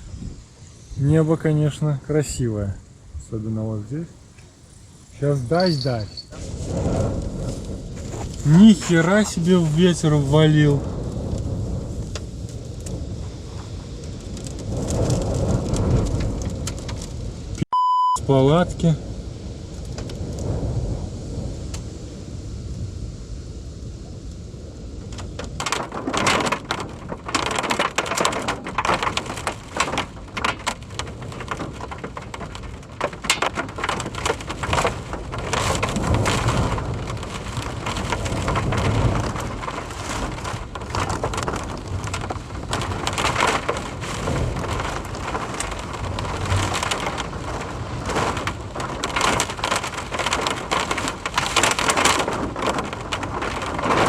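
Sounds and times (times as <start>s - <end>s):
heavy rain pelting down: 0.0s - 54.0s
strong gusty wind: 0.0s - 54.0s.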